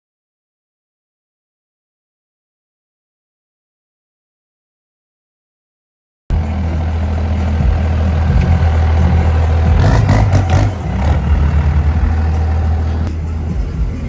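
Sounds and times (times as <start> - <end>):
diesel truck engine rumbling: 6.3 - 14.0.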